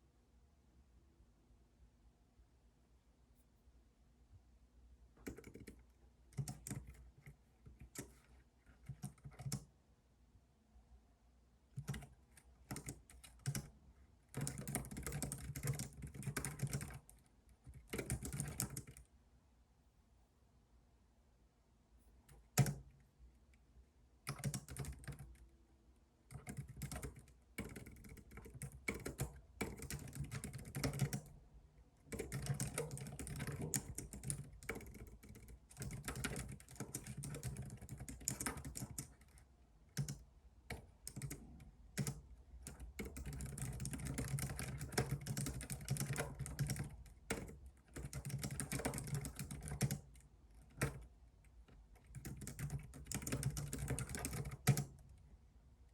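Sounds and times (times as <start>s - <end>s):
computer keyboard typing: 5.2s - 9.7s, 11.8s - 19.0s, 22.5s - 22.9s, 24.2s - 25.4s, 26.3s - 31.4s, 32.0s - 55.1s.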